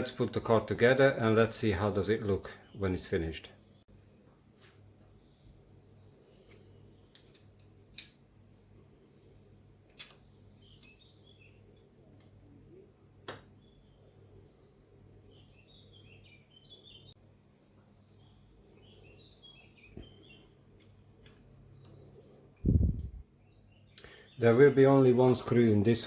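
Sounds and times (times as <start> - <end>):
toy car parts clicking: 9.9 - 10.2.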